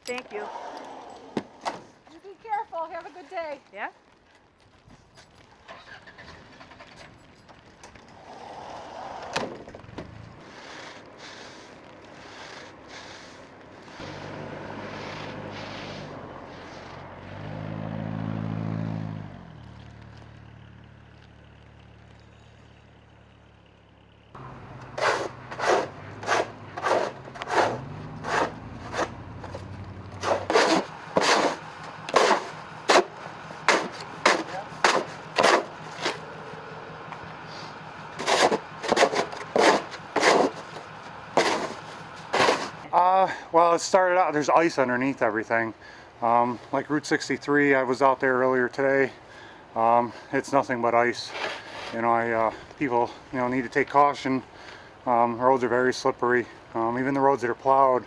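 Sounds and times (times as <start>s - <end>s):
vehicle engine running: 5.3s - 58.0s
shovel scraping snow: 10.4s - 17.0s, 24.9s - 36.3s, 37.5s - 40.8s, 41.4s - 42.9s, 51.2s - 52.0s.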